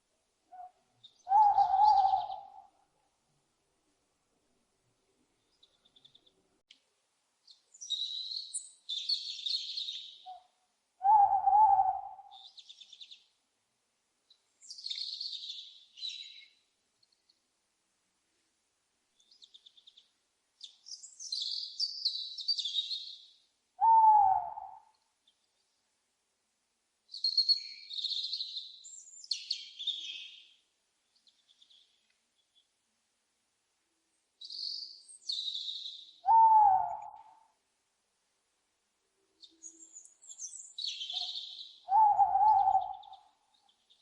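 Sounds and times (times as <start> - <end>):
owl hoots: 0.5 - 2.8, 10.2 - 12.5, 23.8 - 24.9, 36.2 - 37.5, 41.1 - 43.4.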